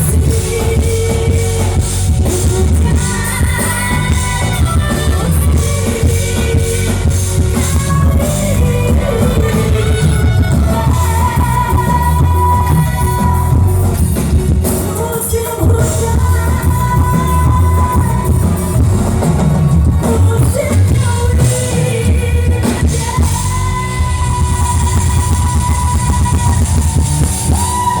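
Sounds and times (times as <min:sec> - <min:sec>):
live dangdut band music: 0:00.0 - 0:28.0
steady heavy bass: 0:00.0 - 0:28.0.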